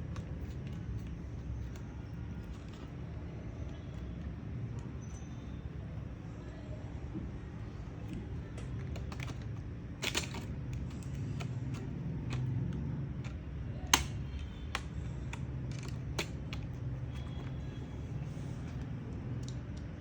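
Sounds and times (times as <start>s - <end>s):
plastic clicks and taps: 8.0s - 17.8s.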